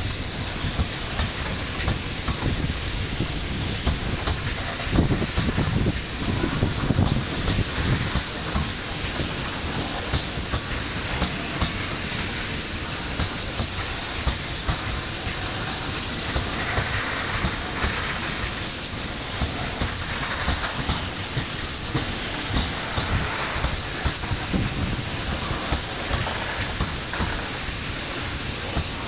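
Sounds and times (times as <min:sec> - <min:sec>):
train wheels hissing on rail: 0:00.0 - 0:29.0.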